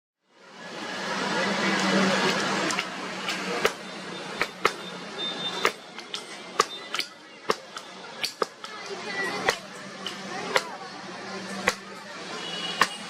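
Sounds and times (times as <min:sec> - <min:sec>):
hammer striking metal on anvil: 0:04.4 - 0:04.8.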